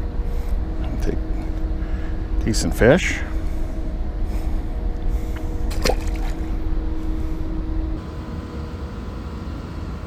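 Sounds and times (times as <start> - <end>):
rushing rumble of pumped water: 0.0 - 8.0
steady hum: 0.0 - 10.0.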